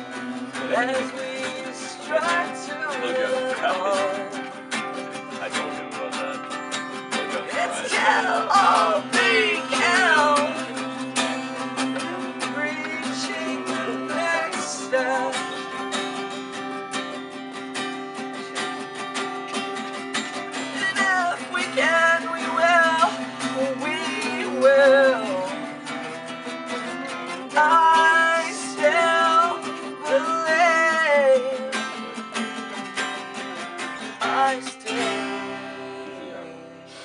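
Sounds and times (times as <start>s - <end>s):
person singing: 0.0s - 4.6s, 5.4s - 11.0s, 11.7s - 16.3s, 20.4s - 26.0s, 26.7s - 32.3s, 33.8s - 37.0s
acoustic guitar strumming: 0.0s - 37.0s.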